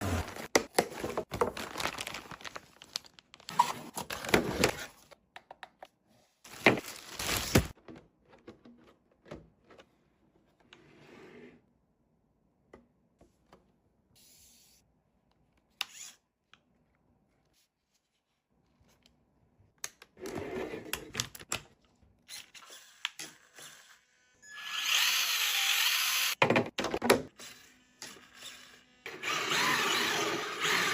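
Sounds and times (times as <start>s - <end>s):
toy car motor whirring: 22.3s - 26.4s, 27.4s - 30.9s.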